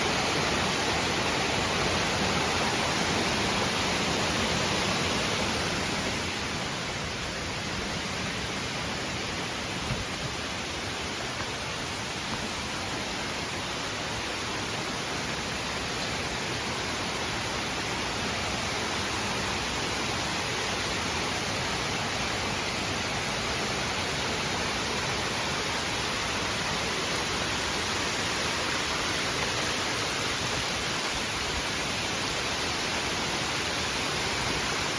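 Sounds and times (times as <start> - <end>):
waterfall splashing: 0.0 - 34.9.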